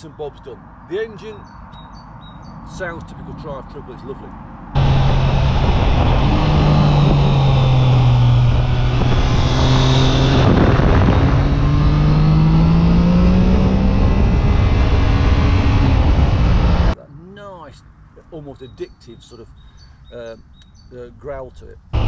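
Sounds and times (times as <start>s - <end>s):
motorcycle engine growling: 4.8s - 17.0s.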